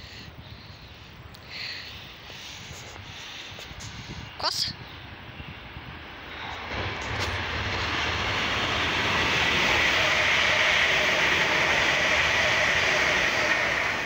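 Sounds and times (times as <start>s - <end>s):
train wheels rumbling on rails: 5.1s - 14.0s.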